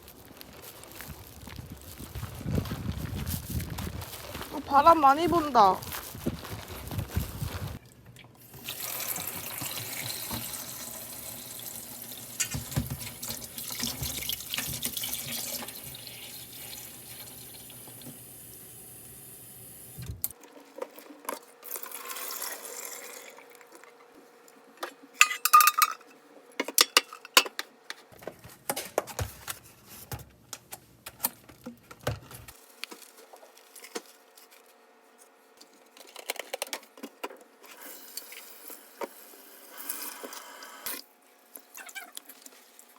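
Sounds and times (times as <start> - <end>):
water running from a tap: 8.4 - 20.0
dishes clinking and clattering: 25.2 - 26.1.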